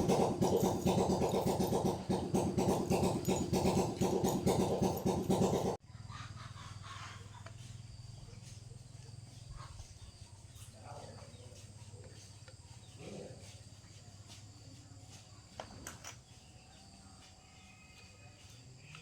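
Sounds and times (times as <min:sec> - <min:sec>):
engine running: 0:00.0 - 0:05.8.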